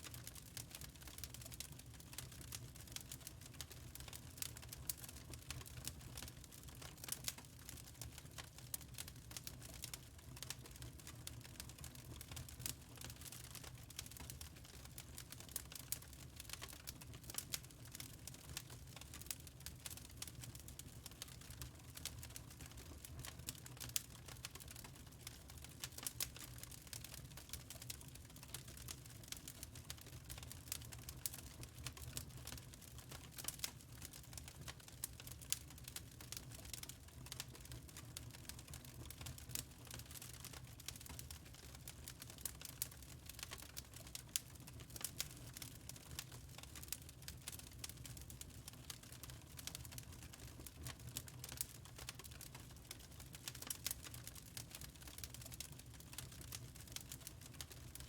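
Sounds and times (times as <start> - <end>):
low rumble of burning: 0.0 - 58.0
wood fire crackling and popping: 0.0 - 58.0
fire pops and snaps: 47.8 - 54.2.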